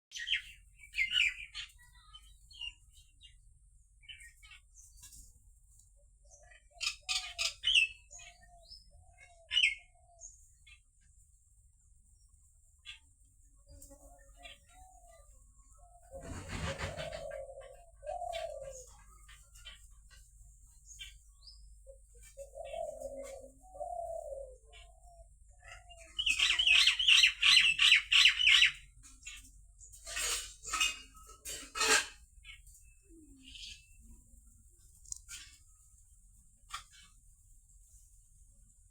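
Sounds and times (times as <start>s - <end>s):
birds chirping: 0.1s - 31.4s, 32.3s - 37.4s
harsh bird calls: 16.0s - 20.2s, 20.9s - 31.1s.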